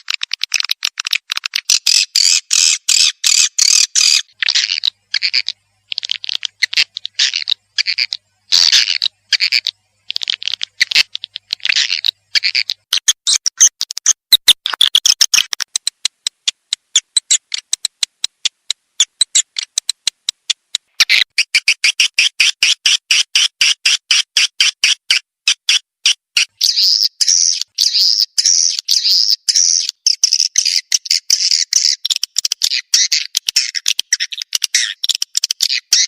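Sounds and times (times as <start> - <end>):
high bird twittering: 1.7 - 13.7, 26.6 - 36.0
rapid sharp clicks: 3.6 - 23.1.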